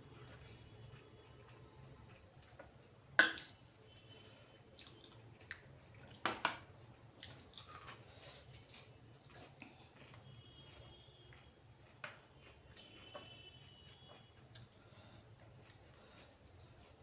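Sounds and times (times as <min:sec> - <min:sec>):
wet eating sounds: 0:07.1 - 0:17.0.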